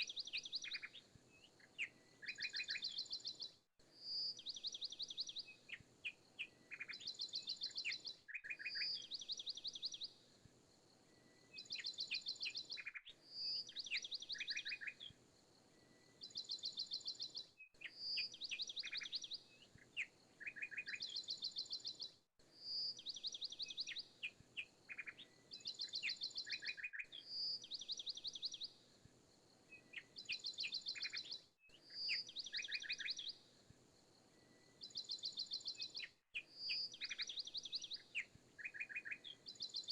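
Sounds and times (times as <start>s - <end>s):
bird chirping trills: 29.8s - 33.4s.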